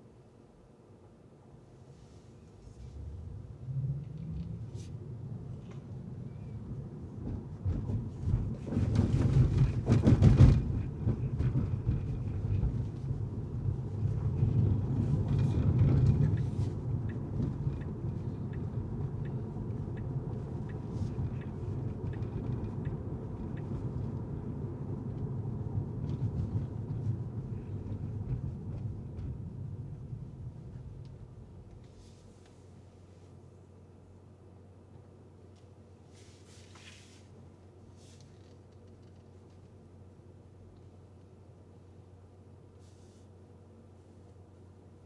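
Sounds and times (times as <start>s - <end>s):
car road and tyre noise: 1.5s - 33.6s
light regular ticks: 16.4s - 23.7s.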